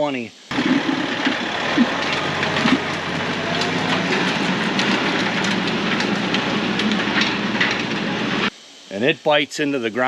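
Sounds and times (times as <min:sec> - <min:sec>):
harrow clattering and rattling: 0:00.5 - 0:08.5
tractor engine: 0:00.5 - 0:08.5.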